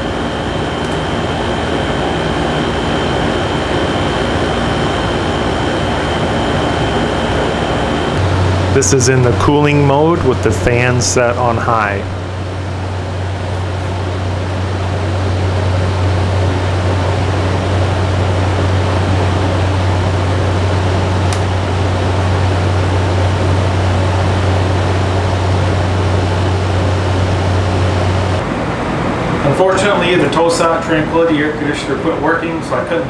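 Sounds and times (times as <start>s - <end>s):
air conditioner running: 0.0s - 33.0s.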